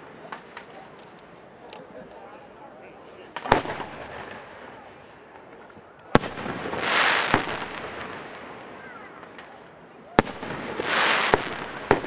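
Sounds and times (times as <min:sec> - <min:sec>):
fireworks bangs: 0:00.0 - 0:02.4, 0:03.0 - 0:12.0
firework hissing rush: 0:06.2 - 0:08.7, 0:10.2 - 0:12.0.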